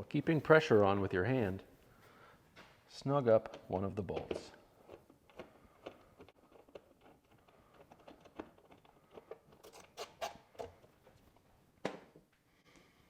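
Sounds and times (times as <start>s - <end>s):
hand tool clicks and scrapes: 3.4s - 10.9s.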